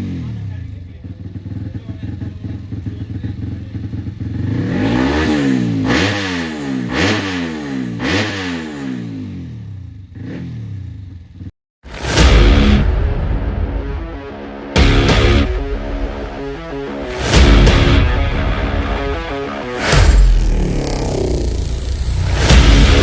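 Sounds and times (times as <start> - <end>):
motocross bike engine revving: 1.2 - 12.8, 16.5 - 23.0
loud music: 11.8 - 23.0.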